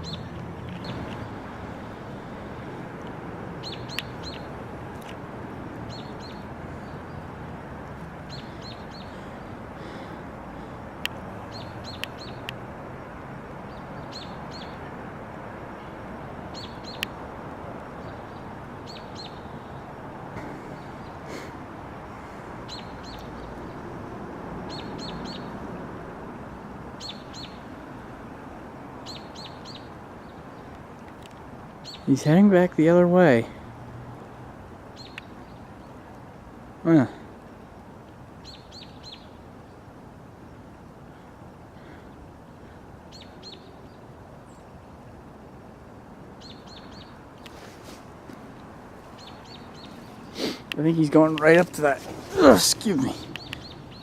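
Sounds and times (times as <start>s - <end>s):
small bird chirping: 0.0s - 1.4s, 3.6s - 4.6s, 5.9s - 7.3s, 7.9s - 9.5s, 11.0s - 12.6s, 16.5s - 17.2s, 17.9s - 19.8s, 22.7s - 23.8s, 24.7s - 25.5s, 27.0s - 27.7s, 29.0s - 30.8s, 31.8s - 32.1s, 35.0s - 36.0s, 38.4s - 39.8s, 46.4s - 47.7s, 48.5s - 54.0s.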